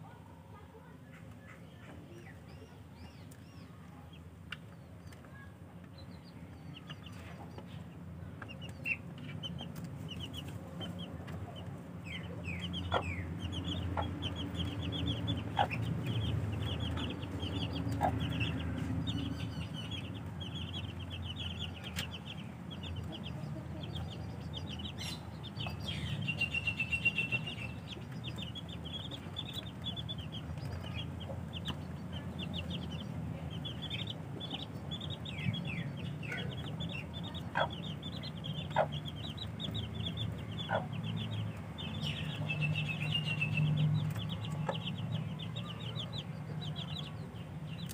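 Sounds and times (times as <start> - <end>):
baby chicks peeping: 0.0 - 47.9.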